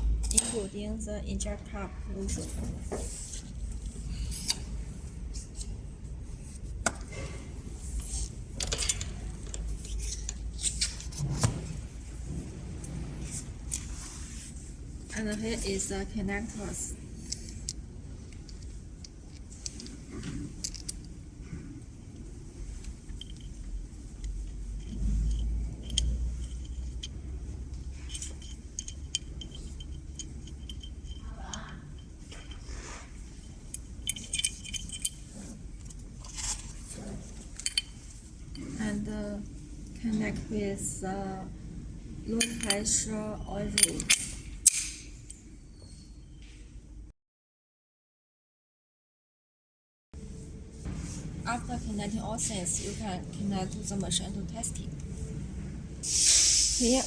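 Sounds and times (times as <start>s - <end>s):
low hum: 0.0s - 45.4s
metal parts clicking and clinking: 0.2s - 0.8s, 6.4s - 11.5s, 16.6s - 21.2s, 22.8s - 38.8s, 42.3s - 45.4s.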